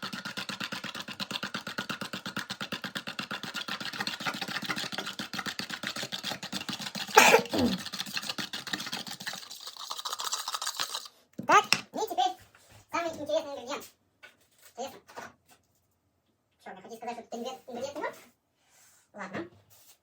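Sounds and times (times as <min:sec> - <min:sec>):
whisk clicking against bowl: 0:00.0 - 0:11.8.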